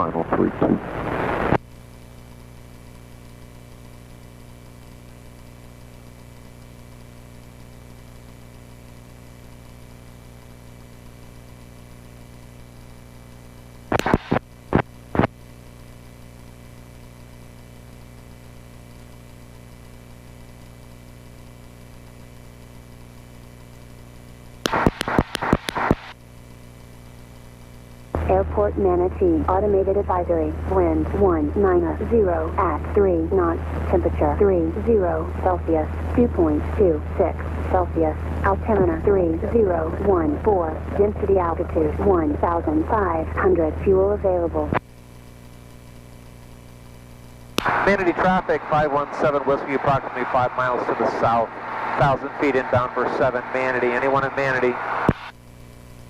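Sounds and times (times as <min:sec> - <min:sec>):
loud radio bursts: 0:13.9 - 0:14.4, 0:24.7 - 0:26.2, 0:47.6 - 0:55.3.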